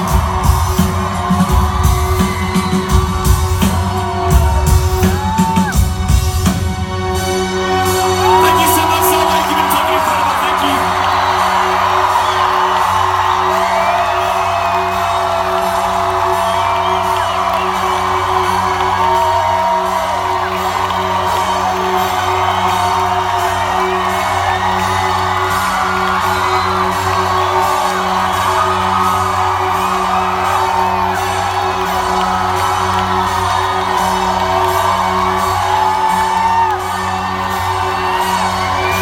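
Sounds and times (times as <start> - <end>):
crowd whooping and singing: 0.0 - 6.0, 7.2 - 39.0
live band playing loudly: 0.0 - 39.0.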